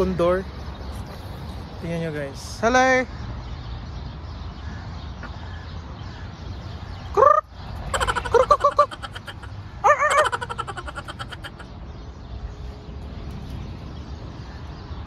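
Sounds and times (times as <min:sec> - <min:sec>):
harsh bird calls: 0:00.0 - 0:15.0.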